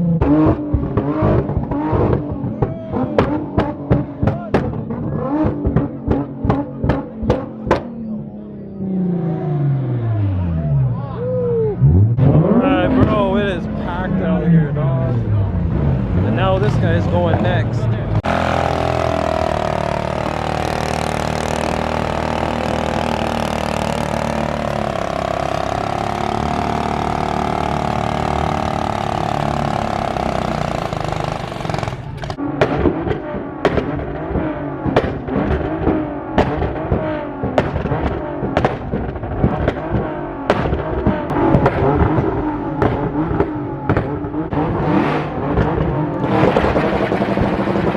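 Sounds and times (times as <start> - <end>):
car engine revving: 0.0 - 10.9, 11.7 - 47.9
sharp bangs and cracks: 18.2 - 47.9.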